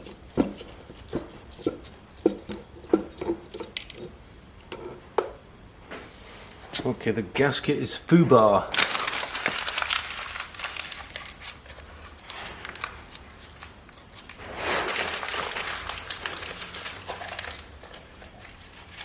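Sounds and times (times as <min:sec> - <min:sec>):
rustling and crinkling handling noise: 0:08.4 - 0:19.0.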